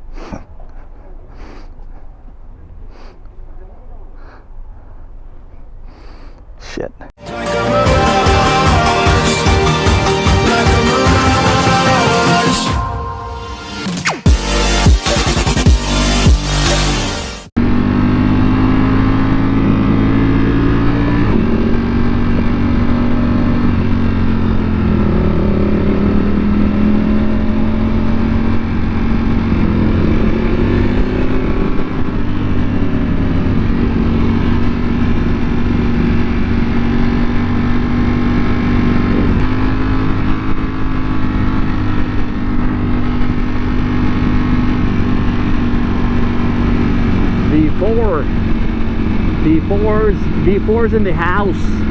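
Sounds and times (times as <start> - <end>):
wind and road noise: 0.0 - 7.2, 17.6 - 51.9
motorcycle engine cruising: 14.3 - 51.9.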